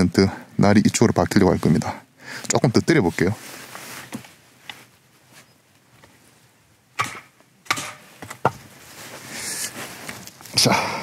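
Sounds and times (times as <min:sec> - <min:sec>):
blade striking a log: 0:07.0 - 0:08.6.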